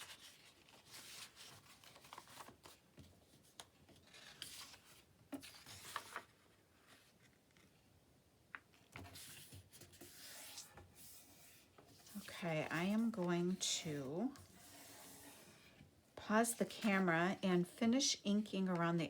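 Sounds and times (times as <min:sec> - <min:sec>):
paper rustling: 0:00.0 - 0:07.8, 0:08.8 - 0:15.8.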